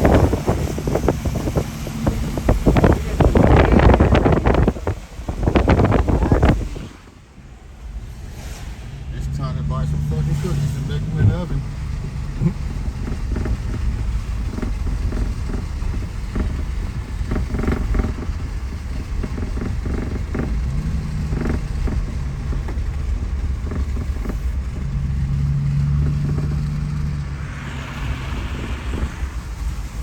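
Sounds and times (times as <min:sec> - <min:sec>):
engine and tyre rumble: 0:00.0 - 0:30.0
rising hiss: 0:27.2 - 0:30.0.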